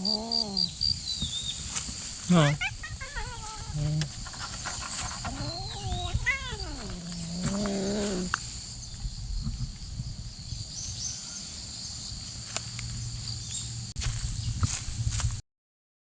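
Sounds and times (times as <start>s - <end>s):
angry cat yowling and growling: 0.0s - 0.8s, 2.3s - 8.4s.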